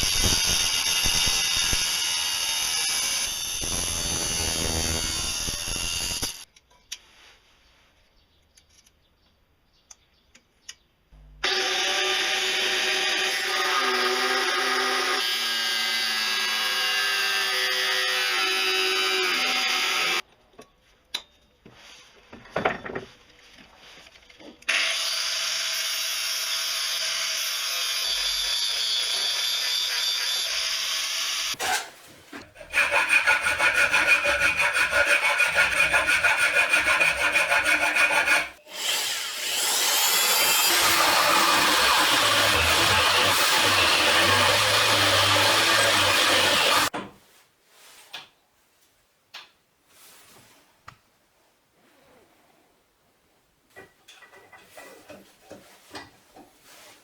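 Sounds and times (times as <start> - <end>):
power tool grinding metal: 0.0 - 6.4, 32.5 - 46.9.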